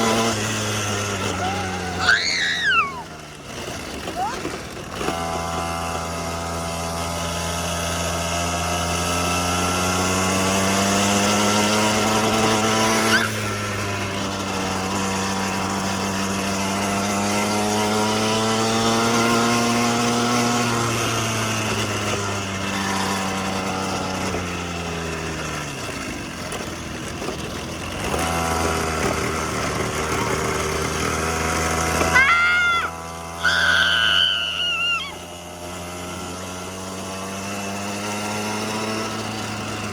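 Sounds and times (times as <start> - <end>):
small petrol engine running: 0.0 - 39.9
high-pitched voice crying out: 1.3 - 3.2, 32.1 - 35.2.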